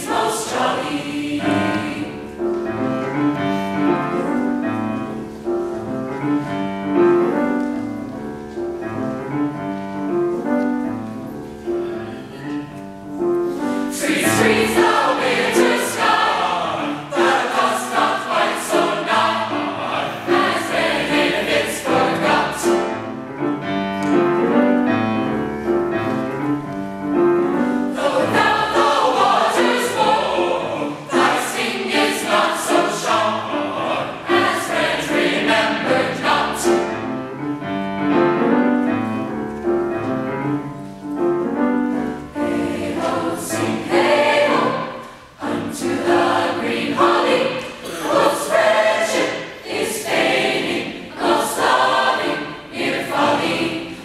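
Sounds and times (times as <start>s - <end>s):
choir singing in harmony: 0.0s - 8.0s, 13.3s - 25.4s, 27.1s - 39.1s, 41.5s - 54.0s.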